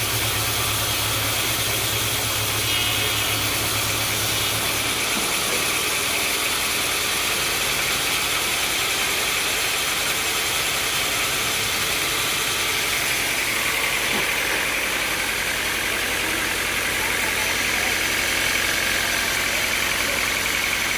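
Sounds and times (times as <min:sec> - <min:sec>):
sawmill machinery running: 0:00.0 - 0:20.9
high-pitched hiss: 0:01.1 - 0:06.1.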